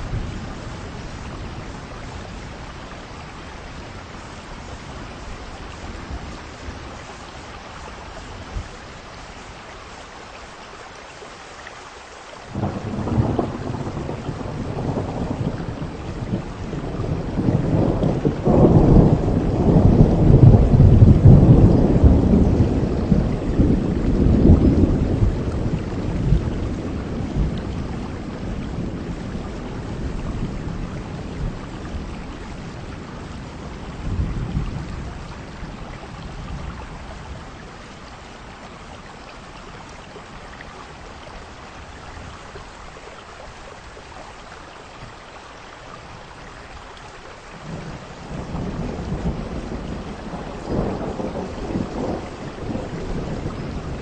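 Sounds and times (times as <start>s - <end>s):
heavy rain: 0.0s - 54.0s
thunder rolling: 12.5s - 32.1s, 47.6s - 54.0s.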